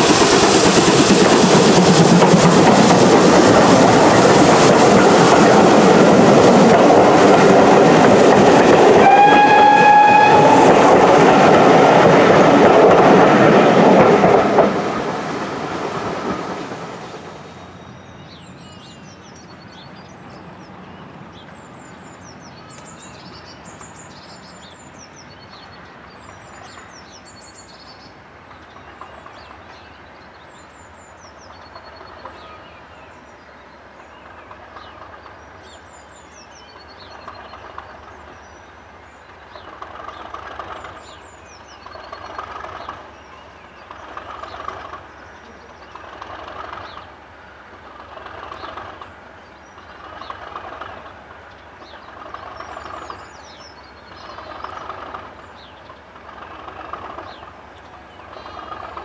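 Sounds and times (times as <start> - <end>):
train passing: 0.0 - 59.0
train whistle blast: 8.9 - 10.9.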